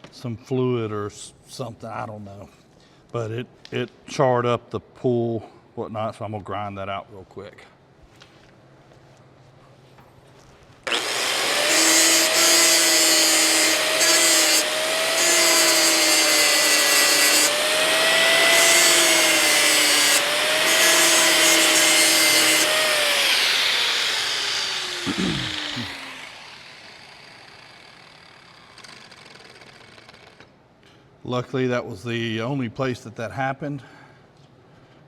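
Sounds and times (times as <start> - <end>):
grinder cutting metal: 10.9 - 30.4
grinder winding down: 10.9 - 30.5.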